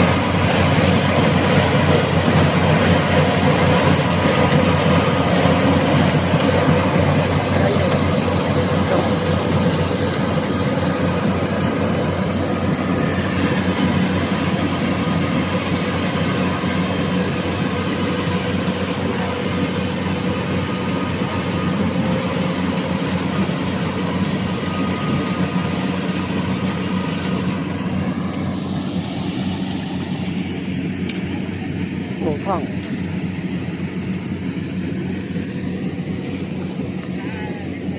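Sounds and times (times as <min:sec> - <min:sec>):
engine running steadily: 0:00.0 - 0:37.9.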